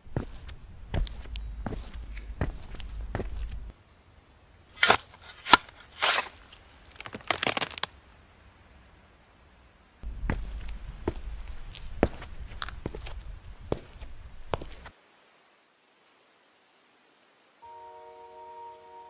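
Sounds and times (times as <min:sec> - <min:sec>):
footsteps: 0:00.0 - 0:03.7, 0:10.0 - 0:14.9
low outdoor rumble: 0:00.0 - 0:03.7, 0:10.0 - 0:14.9
sharp cracking noises: 0:04.7 - 0:08.0.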